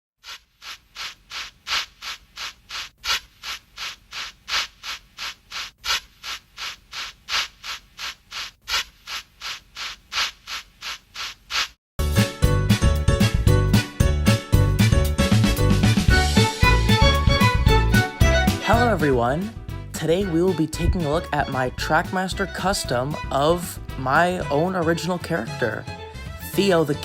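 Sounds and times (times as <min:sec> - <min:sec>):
music: 0:12.0 - 0:27.0.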